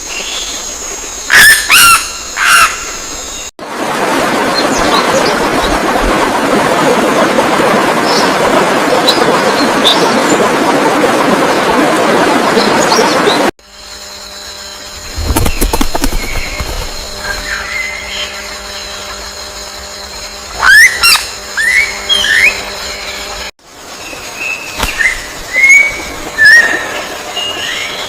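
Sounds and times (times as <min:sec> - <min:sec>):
birds chirping: 0:15.0 - 0:19.3.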